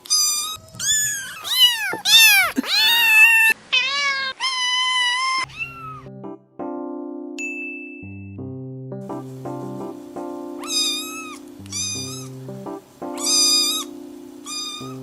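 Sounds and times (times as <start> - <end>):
kittens meowing: 0.0 - 6.1, 10.6 - 12.4, 13.2 - 15.0
low music tones: 6.0 - 15.0.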